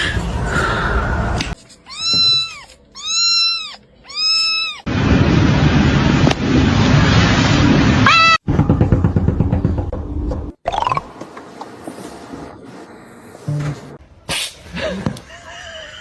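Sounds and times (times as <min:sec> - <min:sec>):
cat meowing: 0:01.8 - 0:04.9.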